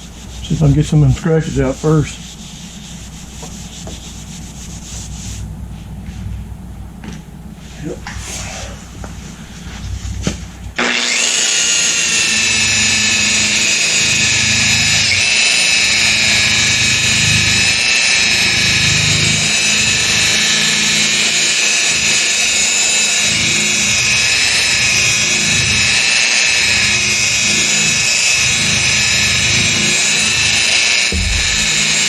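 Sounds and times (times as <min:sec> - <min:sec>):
rotary buffer motor whine: 0:06.4 - 0:32.0.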